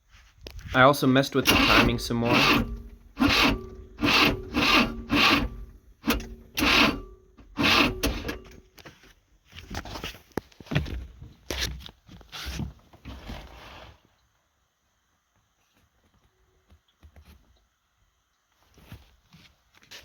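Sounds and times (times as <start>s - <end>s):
rhythmic scraping strokes: 1.3s - 8.4s.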